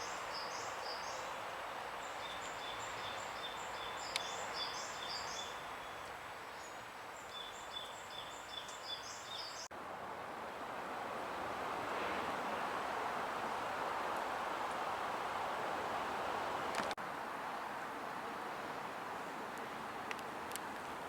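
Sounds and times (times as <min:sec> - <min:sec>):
small birds chirping: 0:02.0 - 0:09.7.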